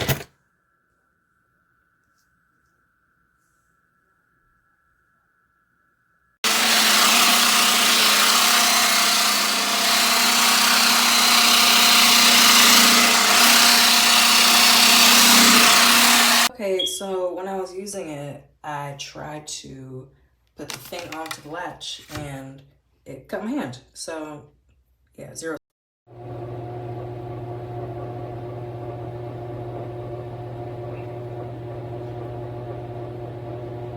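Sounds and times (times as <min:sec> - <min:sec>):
hair dryer running: 0:06.4 - 0:16.5, 0:26.2 - 0:33.9.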